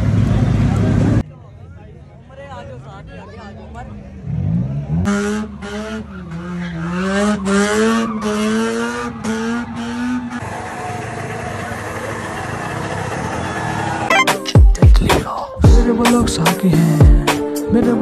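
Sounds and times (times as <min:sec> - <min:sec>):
spinning tyres rushing: 0:02.7 - 0:14.1
car engine revving high: 0:04.2 - 0:14.1.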